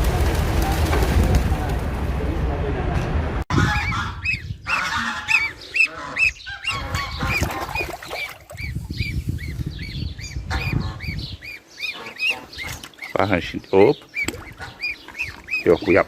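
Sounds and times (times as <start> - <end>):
bird calling: 3.6 - 16.0.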